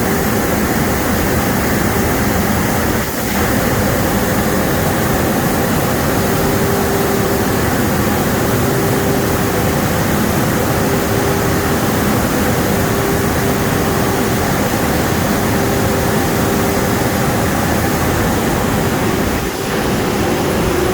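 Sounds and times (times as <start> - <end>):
car wash water spray and blowers: 0.0 - 20.9
steady hum: 0.0 - 20.9.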